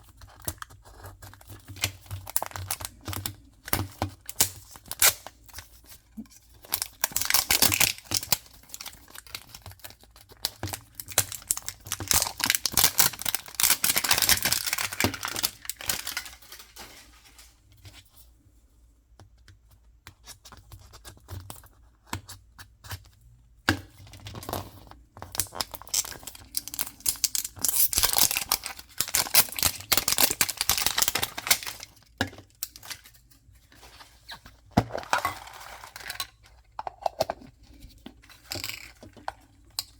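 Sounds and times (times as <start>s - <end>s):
packaging being torn and crinkled: 0.6s - 5.7s, 6.5s - 17.5s, 24.2s - 33.3s.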